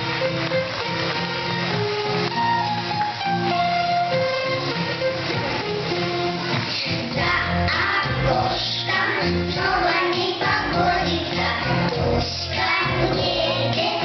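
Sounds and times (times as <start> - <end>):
song with singing voices: 5.2 - 14.0.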